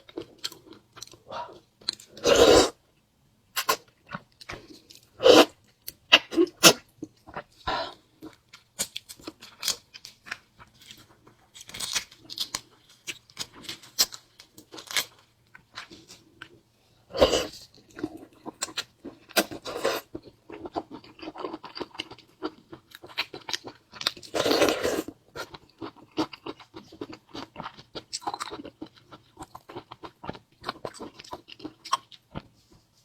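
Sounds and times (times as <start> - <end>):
person chewing crunchily: 17.1 - 32.5.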